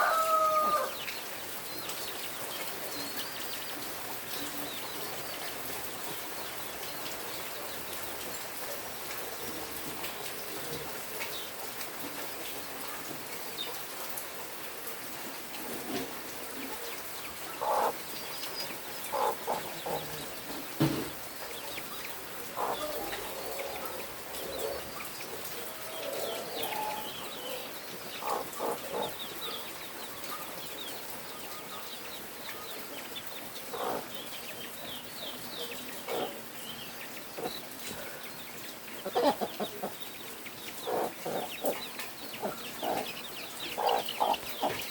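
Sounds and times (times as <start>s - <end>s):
chickens clucking: 15.1s - 44.9s.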